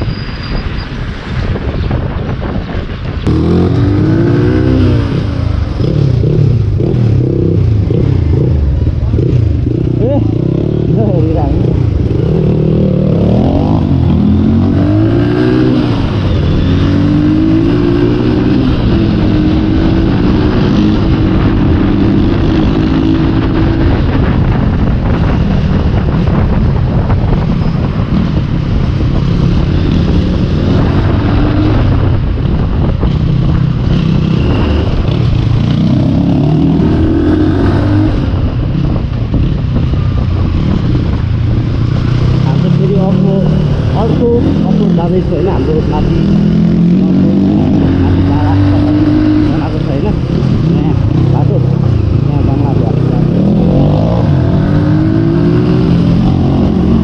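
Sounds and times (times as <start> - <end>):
motorcycle engine revving: 3.2 - 57.0.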